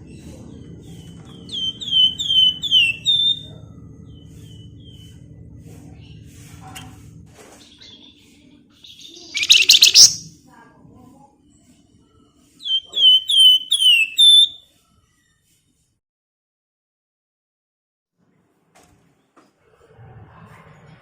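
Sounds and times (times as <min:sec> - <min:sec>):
songbird whistled notes: 0:00.9 - 0:03.5, 0:08.8 - 0:10.3, 0:12.6 - 0:14.6
songbird rattling trill: 0:01.3 - 0:03.5, 0:08.9 - 0:10.3, 0:12.6 - 0:14.6.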